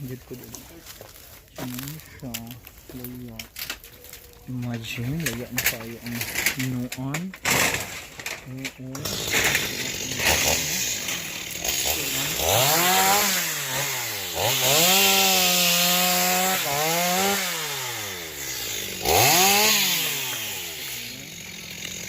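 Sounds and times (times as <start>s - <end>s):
chainsaw revving and cutting wood: 4.7s - 22.0s.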